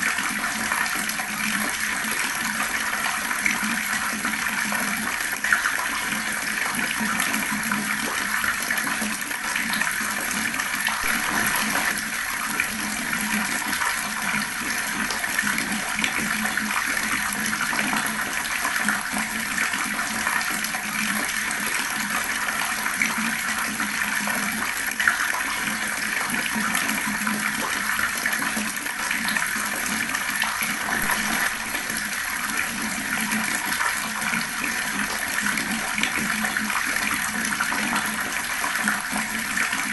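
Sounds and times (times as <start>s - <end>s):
fast-flowing water rushing: 8.3s - 25.2s, 27.8s - 39.9s.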